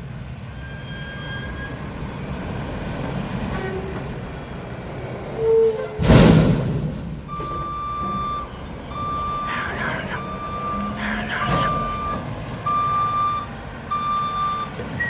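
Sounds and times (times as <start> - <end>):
diesel engine rumbling: 0.0 - 15.0
reversing beeper: 7.2 - 15.0.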